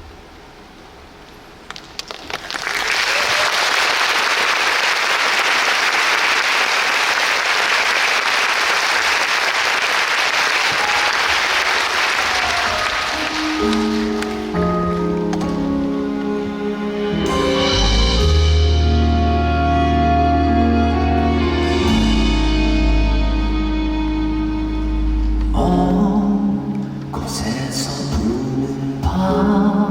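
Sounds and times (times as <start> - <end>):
audience applauding: 2.0 - 14.6
instrumental music: 10.8 - 29.8.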